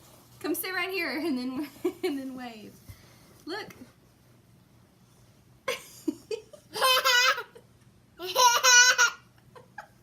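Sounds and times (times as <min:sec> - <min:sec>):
young child laughing: 0:05.7 - 0:10.0.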